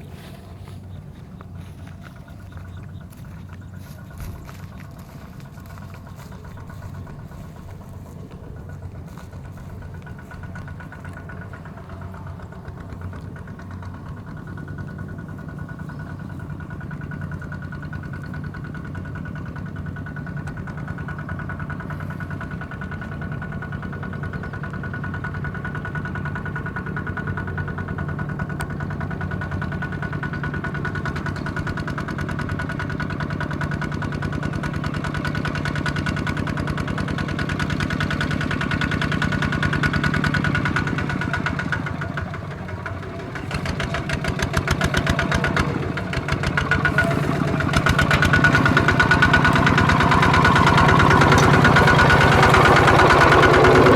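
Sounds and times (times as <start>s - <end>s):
tractor diesel engine putter: 0.0s - 53.9s.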